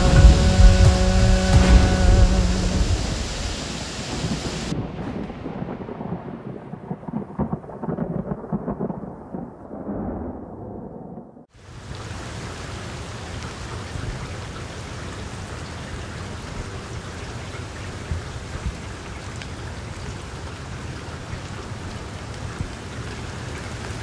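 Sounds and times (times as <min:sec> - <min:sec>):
sharp drop hits: 0:00.0 - 0:04.4
rain on leafy trees: 0:00.0 - 0:24.0.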